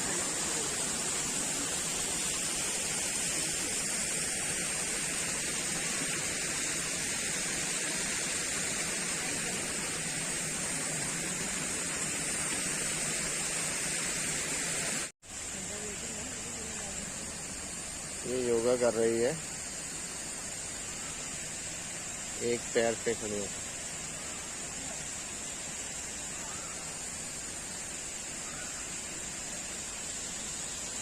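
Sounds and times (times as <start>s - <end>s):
outdoor background hiss: 0.0s - 31.0s.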